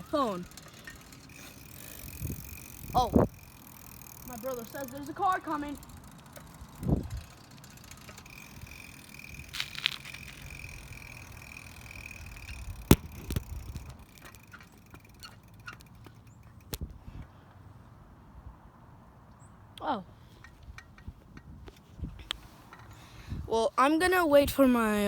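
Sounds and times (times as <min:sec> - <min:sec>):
wind rumble on microphone: 0:02.0 - 0:03.4, 0:06.8 - 0:07.3, 0:20.6 - 0:22.5, 0:23.2 - 0:23.5
sharp clicks: 0:12.4 - 0:16.9.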